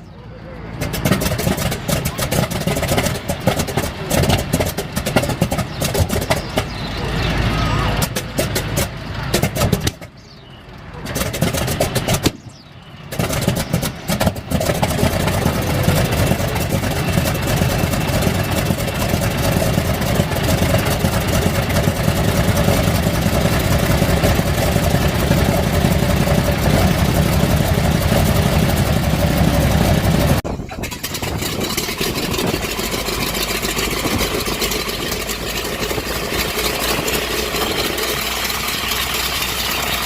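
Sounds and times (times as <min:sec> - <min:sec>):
piston aircraft engine starting: 0:00.2 - 0:40.0.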